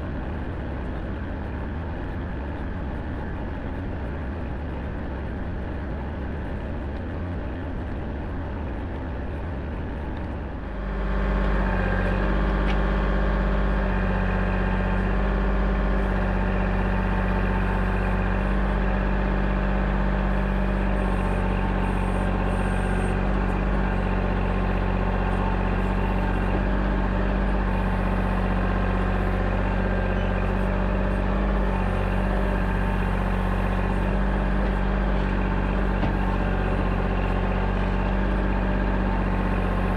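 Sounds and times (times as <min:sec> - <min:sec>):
digging machine engine revving: 0:10.6 - 0:39.9.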